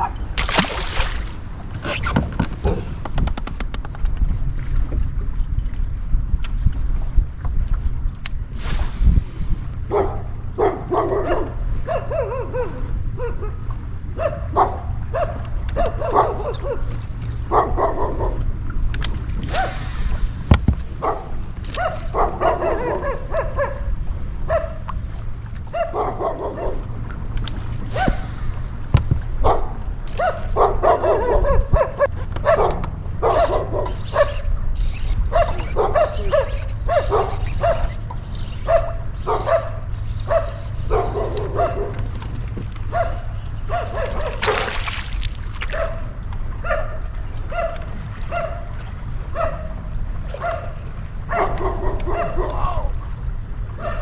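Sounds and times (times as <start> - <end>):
steady low rumble: 0.0 - 54.0
dog barking and yipping: 9.9 - 13.6, 14.2 - 18.4, 21.0 - 24.8, 25.7 - 26.9, 27.8 - 28.4, 29.4 - 42.0, 42.9 - 44.8, 45.7 - 48.7, 49.3 - 49.8, 50.4 - 52.7, 53.8 - 54.0.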